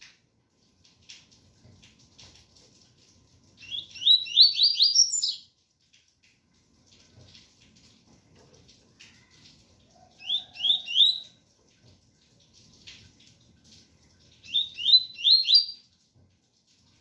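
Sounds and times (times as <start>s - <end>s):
bird singing whistled notes: 3.6s - 5.5s, 10.2s - 11.3s, 14.5s - 15.8s.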